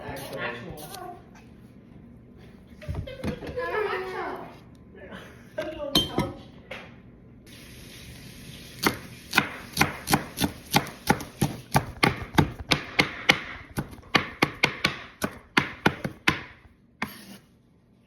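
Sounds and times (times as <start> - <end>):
knife chopping on cutting board: 8.8 - 17.4.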